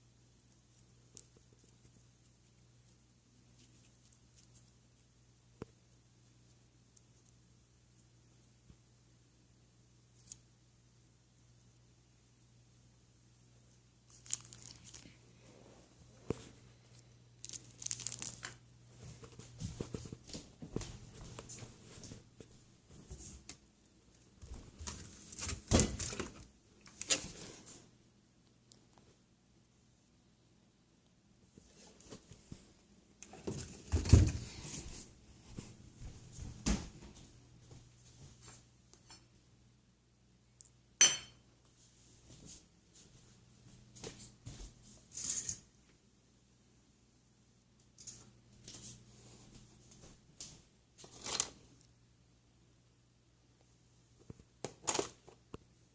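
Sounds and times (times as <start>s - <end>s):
crinkling handling noises: 14.1s - 27.9s, 47.9s - 51.9s
handling noises rubbing and knocks: 19.0s - 23.6s.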